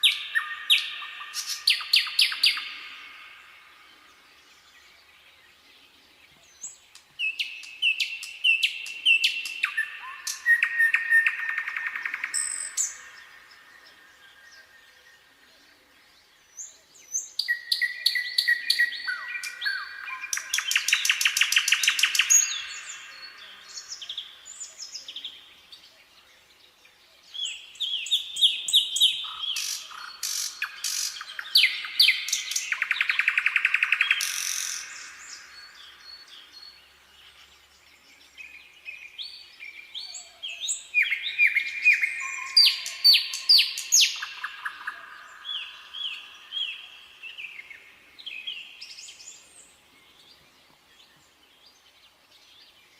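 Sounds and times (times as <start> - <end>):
nightingale singing: 0.0 - 52.9.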